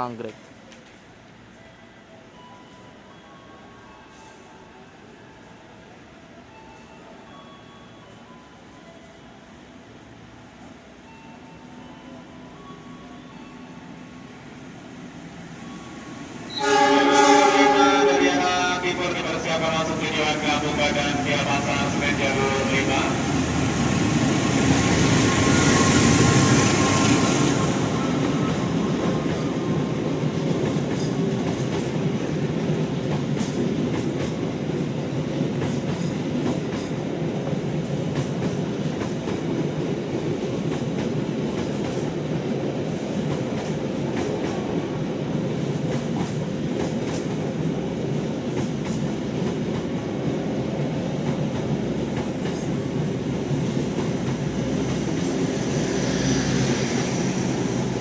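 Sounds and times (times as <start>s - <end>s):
diesel locomotive passing: 8.1s - 58.0s
train coaches rumbling: 13.2s - 58.0s.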